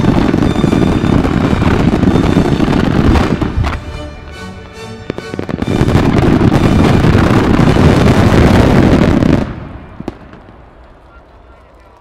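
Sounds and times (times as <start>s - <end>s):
firework shells bursting and crackling: 0.0s - 12.0s
music playing: 0.7s - 8.4s.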